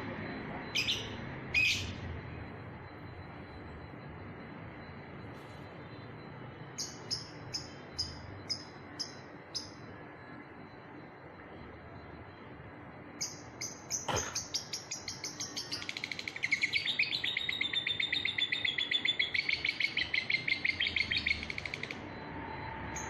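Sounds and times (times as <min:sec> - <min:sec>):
lovebird chirping and trilling: 0:00.8 - 0:02.0, 0:06.8 - 0:09.8, 0:13.2 - 0:22.0.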